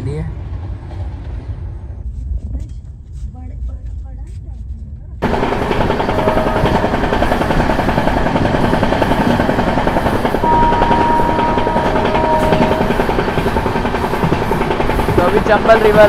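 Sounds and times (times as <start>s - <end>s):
train coaches on track: 5.2s - 16.0s.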